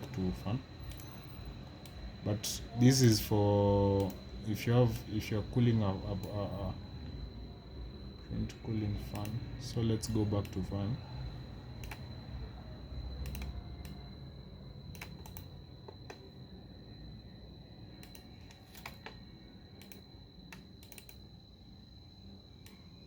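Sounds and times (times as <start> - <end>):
faint high-pitched whine: 0.0 - 23.0
keyboard keys clicking: 11.8 - 12.1, 13.2 - 14.0, 14.9 - 16.2, 19.8 - 21.2.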